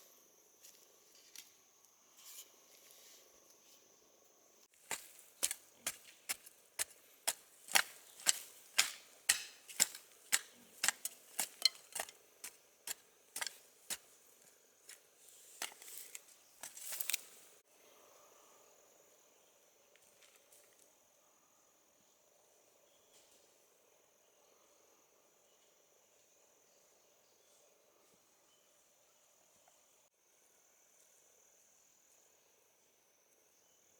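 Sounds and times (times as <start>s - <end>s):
crickets chirring: 0.0s - 33.9s
rasping strokes: 4.8s - 17.2s
hand tool knocking: 4.9s - 14.1s.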